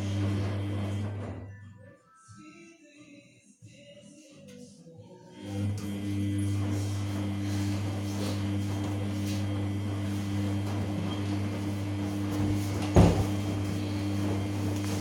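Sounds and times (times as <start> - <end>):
washing machine humming: 0.0 - 1.6, 5.4 - 15.0.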